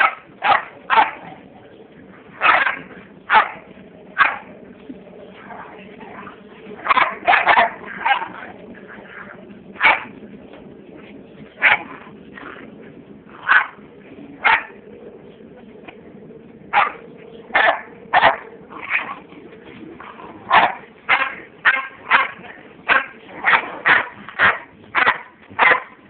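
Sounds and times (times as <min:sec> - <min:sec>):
dogs barking: 0:00.0 - 0:01.5, 0:02.2 - 0:04.5, 0:06.8 - 0:10.2, 0:11.6 - 0:12.5, 0:13.4 - 0:14.8, 0:16.7 - 0:19.3, 0:20.0 - 0:26.0.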